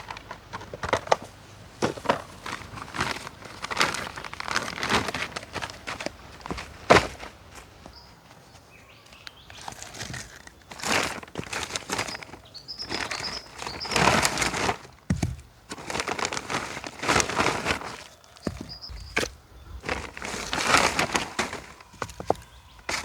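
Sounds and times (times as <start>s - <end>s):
rustling and crinkling: 0.0s - 23.0s
faint high bird chirps: 7.9s - 9.8s, 12.0s - 14.1s, 18.2s - 20.6s, 21.8s - 23.0s.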